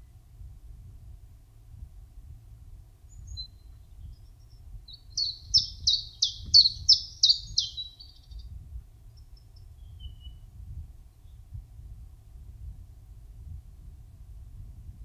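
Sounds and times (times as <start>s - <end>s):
faint bird chirps: 3.1s - 8.5s, 9.1s - 10.5s
songbird singing: 3.1s - 10.5s.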